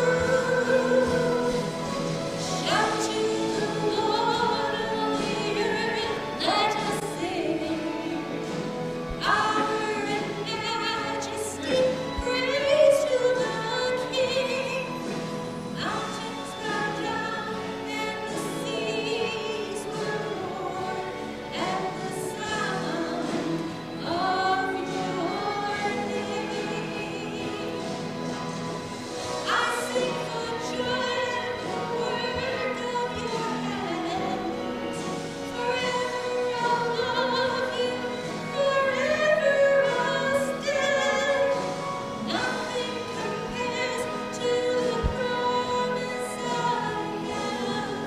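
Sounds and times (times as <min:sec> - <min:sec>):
choir singing: 0:00.0 - 0:08.3.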